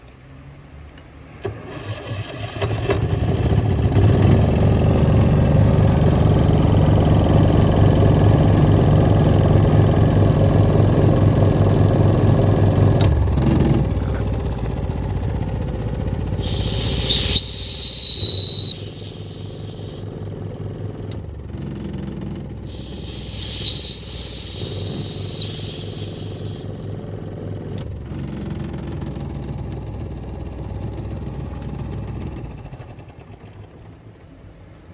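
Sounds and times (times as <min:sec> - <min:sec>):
electric starter cranking: 0:01.4 - 0:06.4, 0:13.0 - 0:21.4, 0:22.5 - 0:28.3
engine air compressor running: 0:01.4 - 0:34.2
high whistling air hiss: 0:16.4 - 0:20.3, 0:22.7 - 0:27.0.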